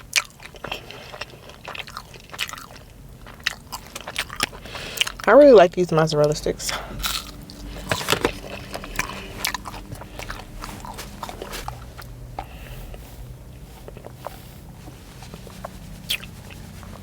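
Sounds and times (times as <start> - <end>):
person chewing crunchy food: 0.0 - 5.3, 6.6 - 17.0
wet mouth clicks: 15.3 - 16.9.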